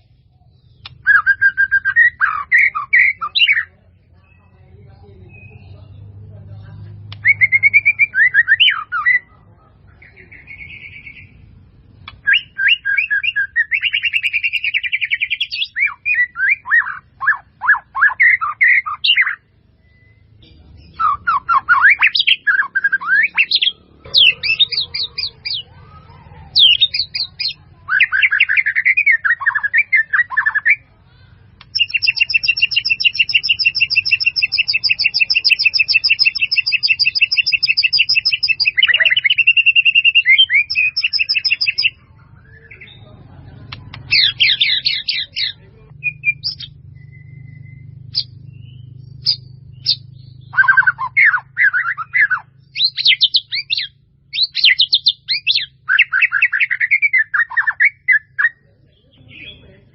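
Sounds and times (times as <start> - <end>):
bird singing whistled phrases: 0.0 - 4.6, 5.2 - 5.8, 7.2 - 9.3, 10.0 - 11.4, 12.0 - 30.9, 31.6 - 43.0, 44.0 - 59.7
bird long rapid trill: 21.0 - 42.0, 44.0 - 58.5.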